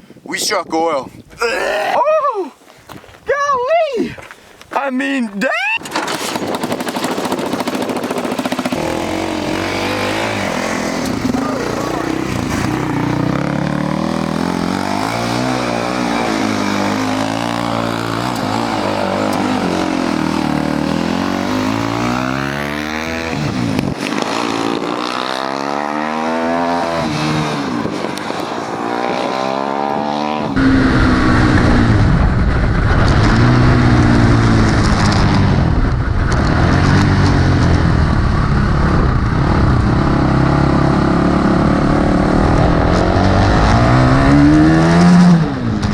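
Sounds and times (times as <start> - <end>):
dirt bike engine revving: 6.0 - 45.8
rushing noise: 26.7 - 45.8.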